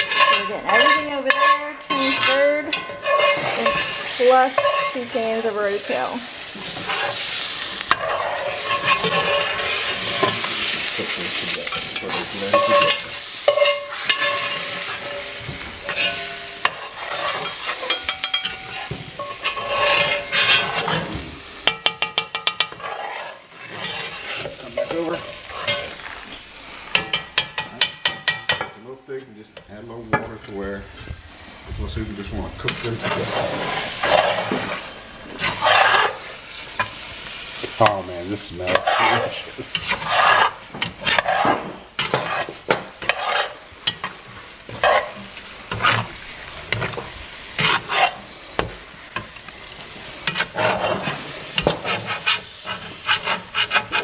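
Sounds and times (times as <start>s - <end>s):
metal spoon scraping a pot: 0.0s - 6.1s, 6.7s - 26.0s, 32.6s - 37.0s, 38.6s - 46.1s, 47.6s - 48.3s, 50.2s - 54.0s
vegetables sizzling in a pot: 0.0s - 54.0s.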